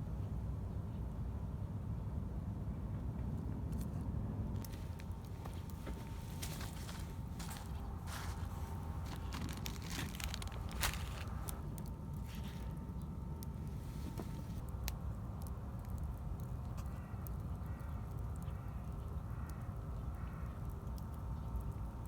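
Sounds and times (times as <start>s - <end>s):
low fire rumble: 4.4s - 22.0s
campfire crackling: 4.6s - 19.8s, 20.5s - 22.0s.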